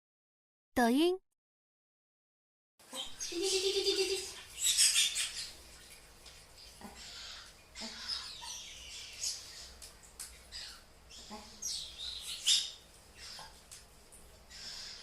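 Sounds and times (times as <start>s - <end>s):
bird chirping: 2.9s - 5.9s, 6.6s - 9.8s, 10.4s - 13.6s.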